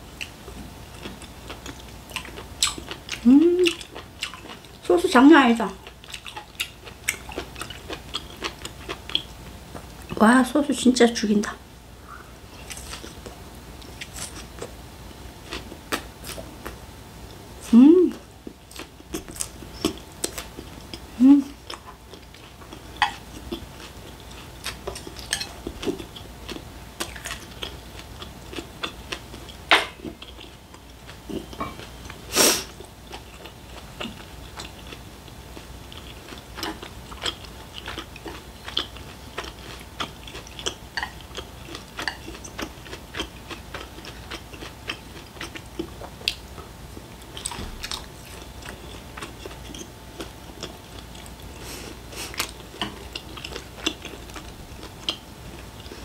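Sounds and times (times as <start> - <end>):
chewing with wet mouth clicks: 1.0 - 4.8, 5.8 - 10.2, 21.7 - 32.2, 32.8 - 51.6, 52.2 - 56.0.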